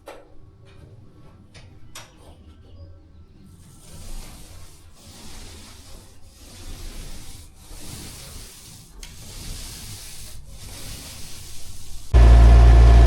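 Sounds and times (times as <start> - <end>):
hand sanding strokes: 3.4 - 12.3.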